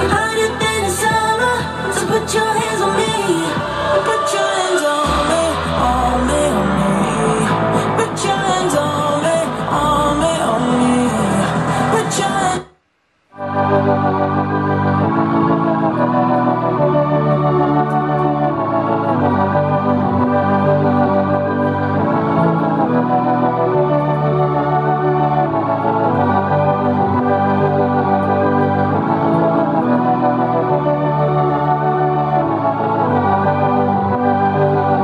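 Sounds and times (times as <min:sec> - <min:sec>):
bass line: 0:00.0 - 0:04.2, 0:05.0 - 0:12.7
organ-like keyboard chords: 0:13.4 - 0:35.0.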